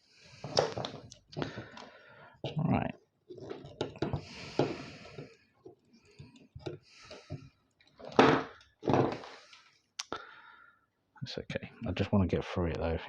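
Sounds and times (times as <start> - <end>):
clicks and knocks of parts: 0.4 - 2.0, 3.3 - 9.7.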